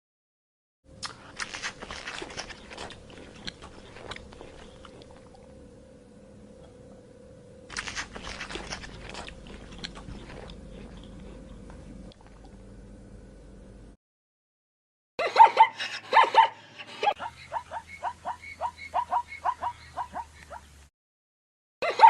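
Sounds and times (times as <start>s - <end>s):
animal chewing crunchy food: 1.0s - 5.6s, 7.7s - 12.6s.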